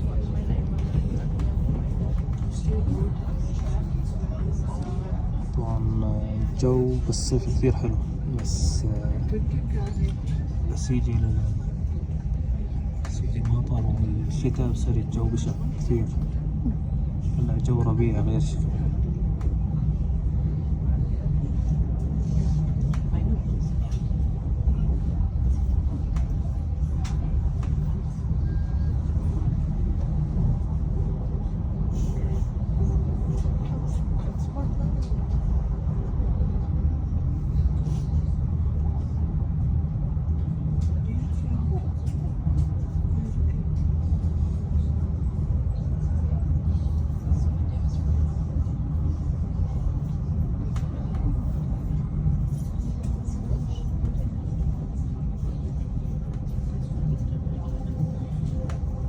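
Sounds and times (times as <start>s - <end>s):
train rumbling on board: 0.0s - 59.0s.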